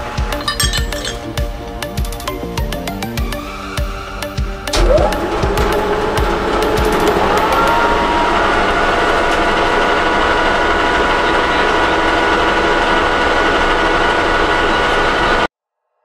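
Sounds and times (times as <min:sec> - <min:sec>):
metal lathe whine: 0:03.3 - 0:15.5.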